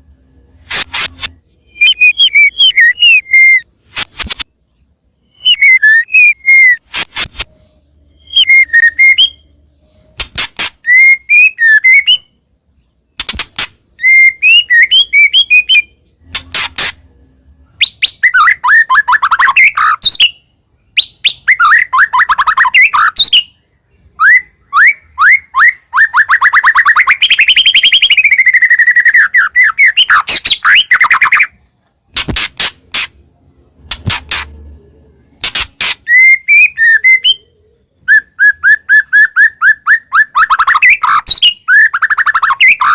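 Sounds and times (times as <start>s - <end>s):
bird singing whistles and clicks: 0.6s - 4.5s, 5.2s - 9.4s, 10.0s - 12.4s, 13.2s - 17.1s, 17.8s - 23.5s, 24.2s - 33.2s, 35.4s - 42.9s
bird rapid trills: 35.3s - 37.5s.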